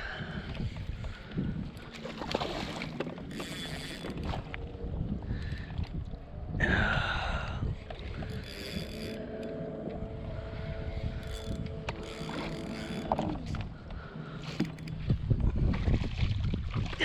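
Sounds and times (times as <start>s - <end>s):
water noise: 0.0s - 17.0s
wind noise: 0.0s - 17.0s
fishing reel whirring: 1.2s - 6.0s, 7.8s - 15.2s.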